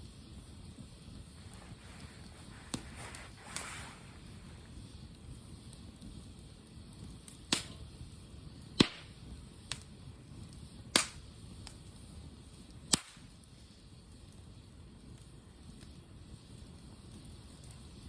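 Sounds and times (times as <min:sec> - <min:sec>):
campfire burning: 0:00.0 - 0:18.0
low steady background noise: 0:00.0 - 0:18.0
wood popping: 0:08.8 - 0:09.8, 0:12.9 - 0:13.3.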